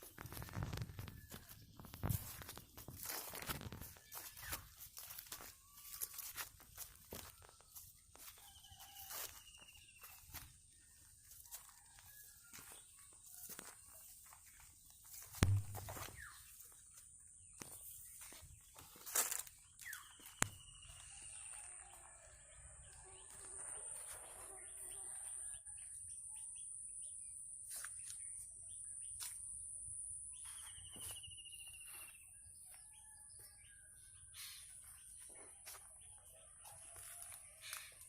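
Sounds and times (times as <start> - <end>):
small birds chirping: 0.0 - 29.6, 30.2 - 38.0
rooster crowing faintly: 8.2 - 10.2, 20.8 - 25.8
sharp knocks: 15.4 - 16.2.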